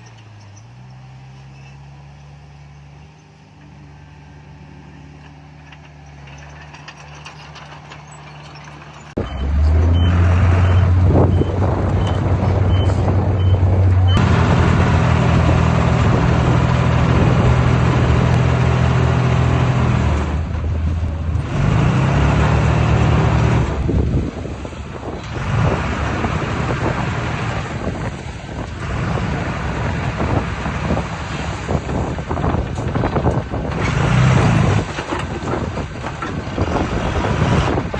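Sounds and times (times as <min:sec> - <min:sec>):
heavy diesel machinery running: 0:00.0 - 0:37.9
reversing alarm beeping: 0:09.2 - 0:14.3.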